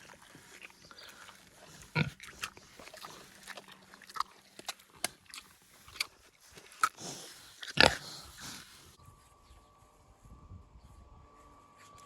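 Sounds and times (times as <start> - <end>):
pigs crunching cucumber: 0.0 - 8.8.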